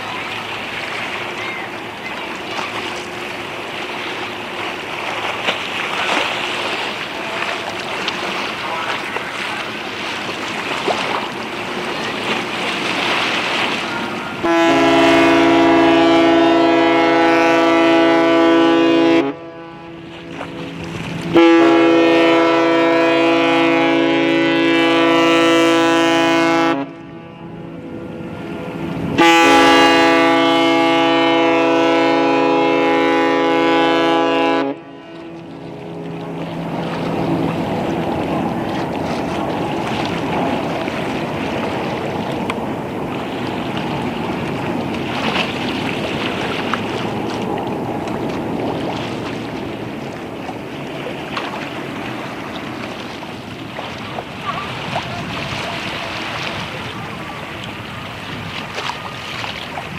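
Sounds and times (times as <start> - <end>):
ship horn blasts: 11.4 - 41.8.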